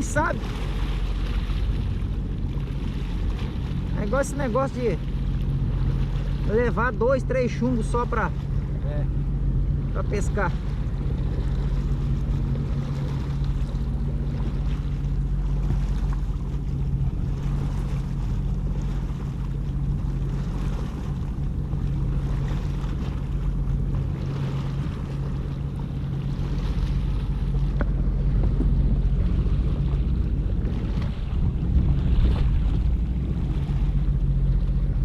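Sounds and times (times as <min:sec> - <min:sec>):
jet ski engine humming: 0:00.0 - 0:35.0
wind noise on microphone: 0:26.4 - 0:35.0.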